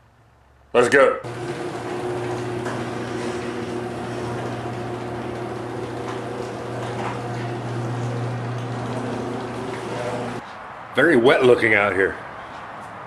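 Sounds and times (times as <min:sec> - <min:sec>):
low machine hum: 0:01.2 - 0:10.4.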